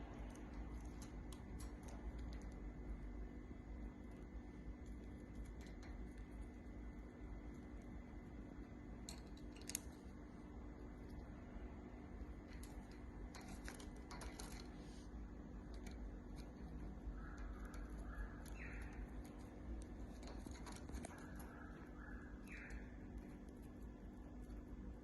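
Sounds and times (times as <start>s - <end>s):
low steady hum: 0.0s - 25.0s
beak clicks: 15.8s - 23.6s
budgerigar chirping: 17.2s - 19.0s.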